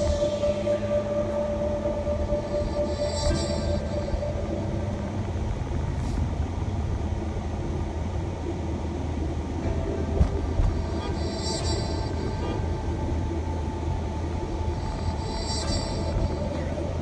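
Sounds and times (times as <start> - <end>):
van engine and road rumble: 4.3 - 15.3.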